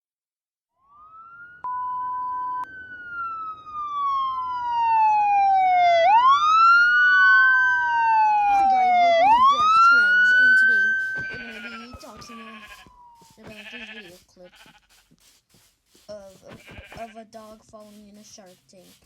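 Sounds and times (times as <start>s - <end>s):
emergency siren wailing: 0.8s - 13.8s.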